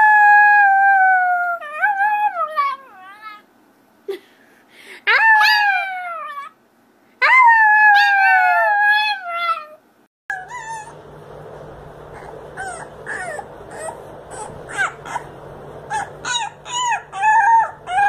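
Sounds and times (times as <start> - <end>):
puppy yipping and howling: 0.0 - 3.4, 5.1 - 6.6, 7.2 - 11.0, 12.1 - 18.0
dog howling: 7.2 - 11.0, 12.1 - 18.0.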